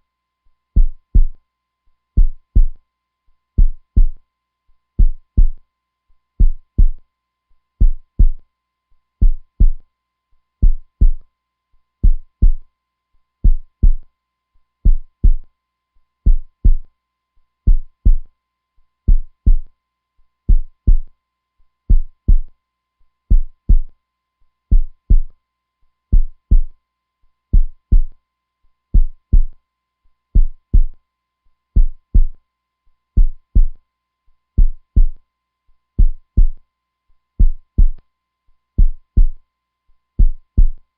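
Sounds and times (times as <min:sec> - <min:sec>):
heartbeat thumps: 0:00.8 - 0:01.4, 0:02.2 - 0:02.8, 0:03.6 - 0:04.2, 0:05.0 - 0:05.6, 0:06.4 - 0:07.0, 0:07.8 - 0:08.4, 0:09.2 - 0:09.8, 0:10.6 - 0:11.2, 0:12.0 - 0:12.6, 0:13.4 - 0:14.0, 0:14.9 - 0:15.4, 0:16.3 - 0:16.8, 0:17.7 - 0:18.3, 0:19.1 - 0:19.7, 0:20.5 - 0:21.1, 0:21.9 - 0:22.5, 0:23.3 - 0:23.9, 0:24.7 - 0:25.3, 0:26.1 - 0:26.7, 0:27.6 - 0:28.1, 0:29.0 - 0:29.5, 0:30.4 - 0:31.0, 0:31.8 - 0:32.4, 0:33.2 - 0:33.8, 0:34.6 - 0:35.2, 0:36.0 - 0:36.6, 0:37.4 - 0:38.0, 0:38.8 - 0:39.4, 0:40.2 - 0:40.8.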